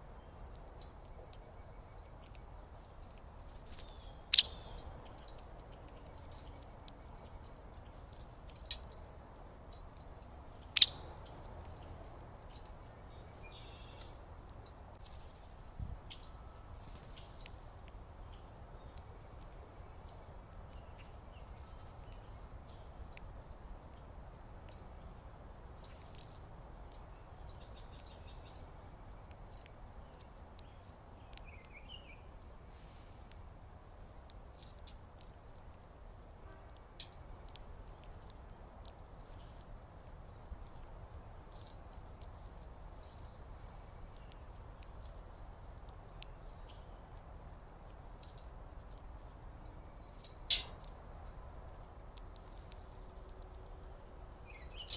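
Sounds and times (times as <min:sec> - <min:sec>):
small birds chirping: 0:00.0 - 0:54.9
bird warbling call: 0:03.9 - 0:04.8, 0:10.8 - 0:11.1.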